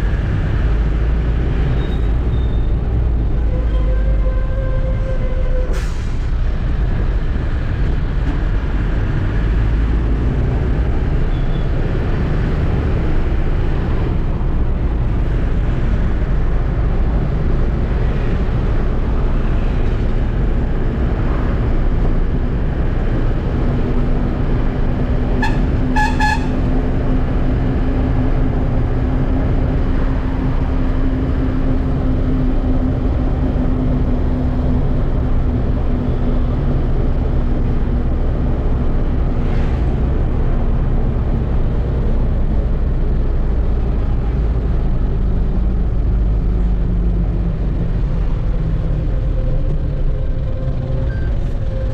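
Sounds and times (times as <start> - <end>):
truck engine rumbling: 0.0 - 51.9
vehicle horn toots: 25.4 - 26.7.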